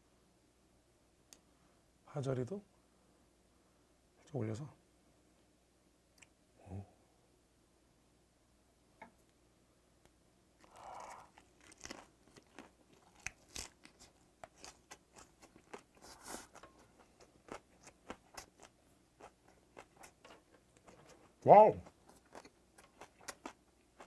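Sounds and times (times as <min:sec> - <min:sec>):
crunching while chewing: 0:10.6 - 0:24.0.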